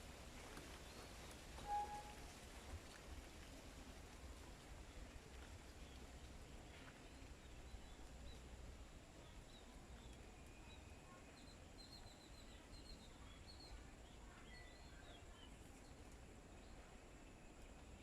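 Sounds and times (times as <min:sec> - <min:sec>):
low outdoor background noise: 0:00.0 - 0:18.0
faint birds chirping: 0:05.7 - 0:18.0.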